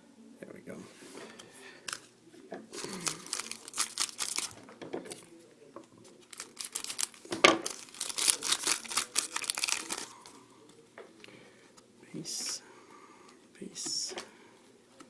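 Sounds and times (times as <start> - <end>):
card pack wrapper crinkling and tearing: 2.8 - 4.6, 6.2 - 10.3.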